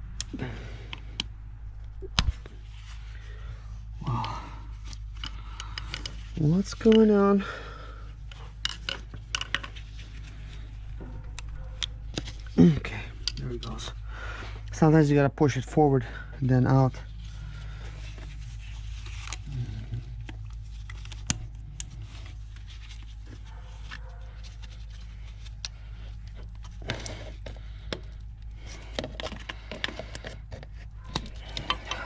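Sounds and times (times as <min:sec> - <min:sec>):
steady low hum: 0:00.0 - 0:32.0
metal tools clinking and rattling: 0:31.0 - 0:32.0.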